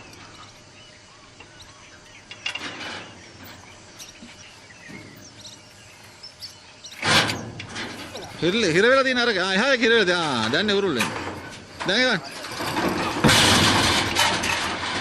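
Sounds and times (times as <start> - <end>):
faint bird chirps: 0.0 - 7.0.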